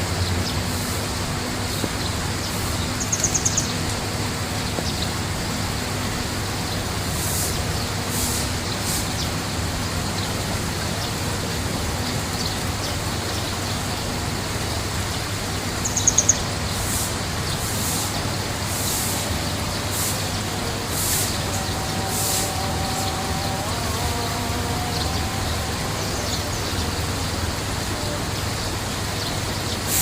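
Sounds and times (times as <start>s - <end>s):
rushing background noise: 0.0s - 30.0s
bird chirping: 2.0s - 3.9s, 15.8s - 18.1s.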